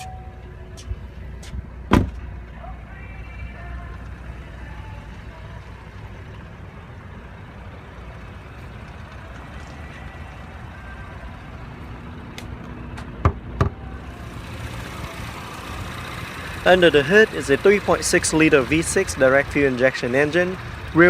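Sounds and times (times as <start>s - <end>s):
car engine idling: 0.0s - 21.0s
sharp clunks: 1.9s - 2.2s.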